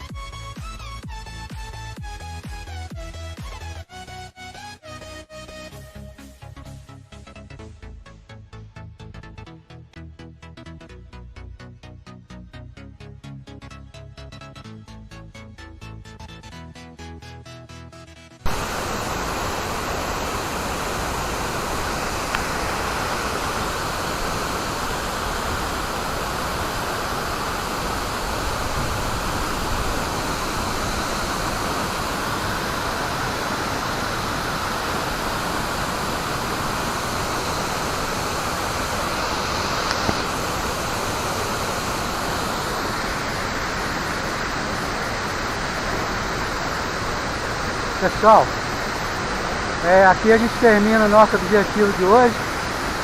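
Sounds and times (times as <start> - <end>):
waterfall rushing: 18.4 - 53.0.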